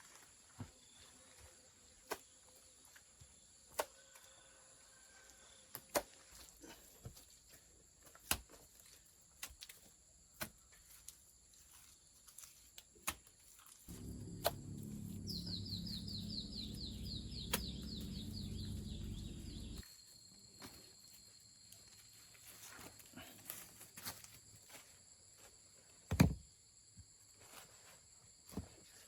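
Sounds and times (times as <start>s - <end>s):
low rumble: 13.9s - 19.8s
small bird trilling: 15.1s - 19.8s.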